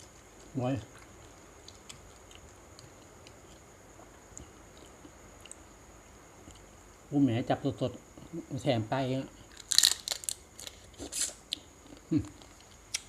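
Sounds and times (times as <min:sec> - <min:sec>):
person chewing food: 0:00.4 - 0:05.7
mouth clicks and smacks: 0:11.0 - 0:13.0.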